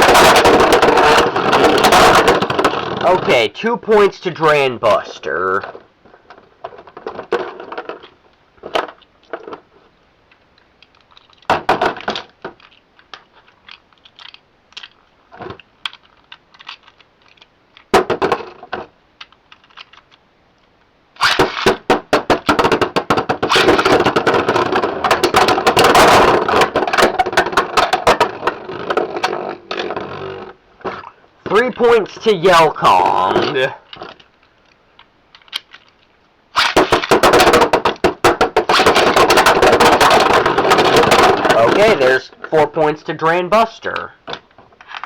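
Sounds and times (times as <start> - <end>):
plastic clicks and knocks: 0.0 - 3.4, 5.6 - 9.7, 10.3 - 20.2, 21.2 - 31.9, 33.1 - 42.1, 43.9 - 45.0.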